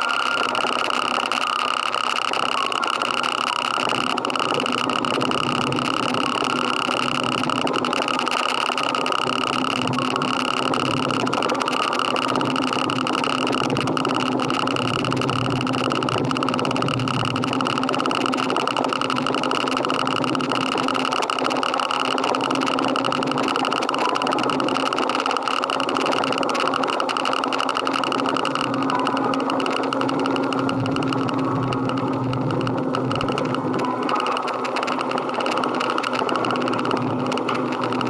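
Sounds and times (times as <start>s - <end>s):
motorcycle engine running: 2.3s - 38.0s.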